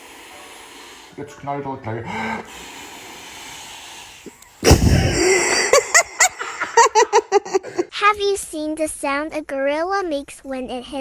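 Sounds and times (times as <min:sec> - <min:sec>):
balloon bursting: 0:04.6 - 0:06.3.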